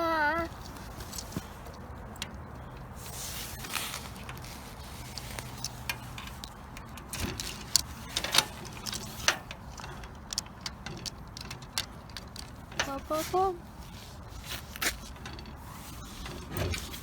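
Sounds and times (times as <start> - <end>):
sharp clicks and knocks: 4.2 - 13.8.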